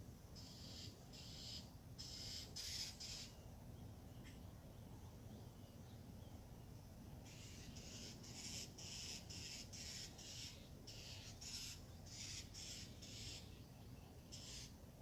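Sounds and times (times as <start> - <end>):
bird harsh rasping call: 0.4 - 3.4, 7.2 - 13.6, 14.3 - 14.8.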